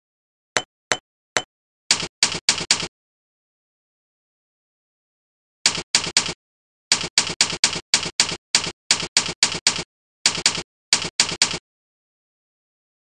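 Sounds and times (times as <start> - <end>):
typewriter keystroke clacks: 1.9 - 2.9, 5.7 - 11.6.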